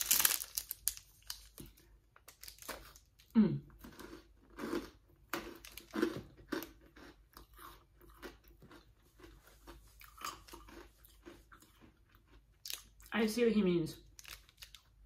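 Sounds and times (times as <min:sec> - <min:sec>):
crunchy chewing: 0:01.2 - 0:13.1.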